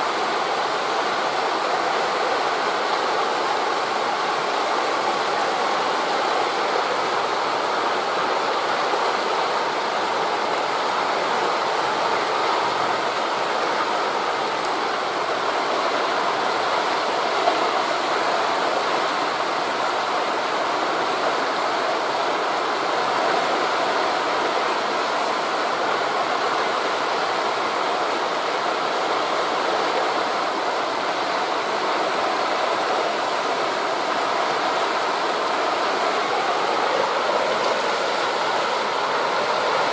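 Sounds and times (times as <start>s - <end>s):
wind rushing through trees: 0.0s - 39.9s
distant surf: 30.2s - 39.9s.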